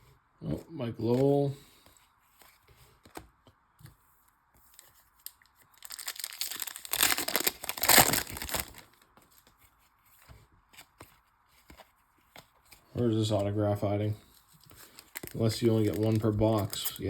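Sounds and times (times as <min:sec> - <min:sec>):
foil wrapper tearing and crinkling: 0:05.2 - 0:09.0, 0:14.7 - 0:17.0.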